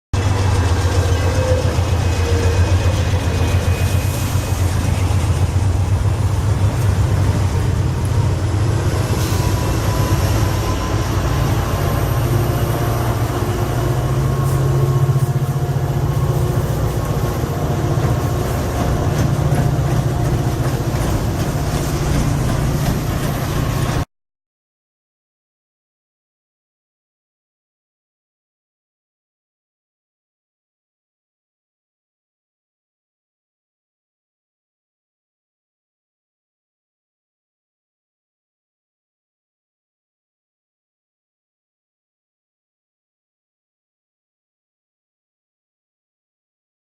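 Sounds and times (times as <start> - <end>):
freight train rumbling past: 0.2 - 24.1
rail noise: 0.2 - 24.1.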